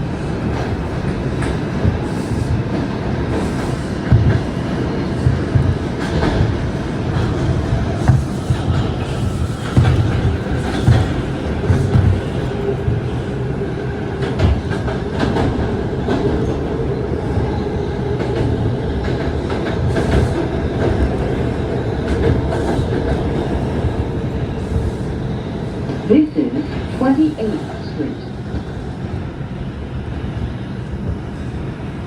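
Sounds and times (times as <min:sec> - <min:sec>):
subway train wheels rumbling: 0:00.0 - 0:32.0.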